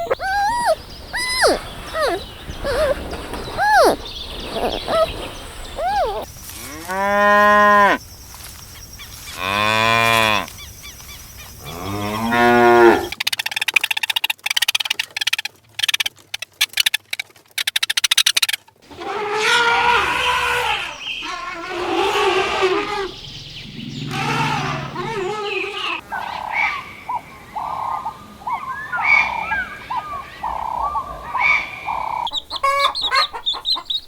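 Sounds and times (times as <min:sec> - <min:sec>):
chirping calls: 0:00.0 - 0:06.3, 0:20.1 - 0:34.0
cow mooing: 0:11.7 - 0:13.1, 0:23.8 - 0:26.0.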